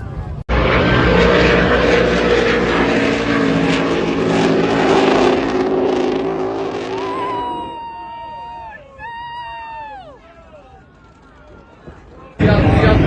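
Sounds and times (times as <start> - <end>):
powerboat engines running: 0.0 - 13.0
loud rushing noise: 0.5 - 7.9, 12.4 - 13.0.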